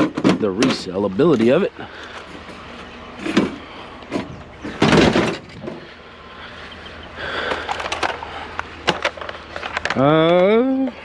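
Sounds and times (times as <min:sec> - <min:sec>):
loud clunk and rattle: 0:00.0 - 0:01.0, 0:03.2 - 0:05.9.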